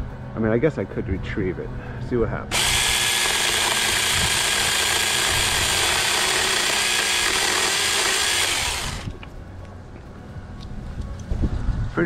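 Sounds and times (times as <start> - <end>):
mini chainsaw cutting branch: 2.5 - 9.2.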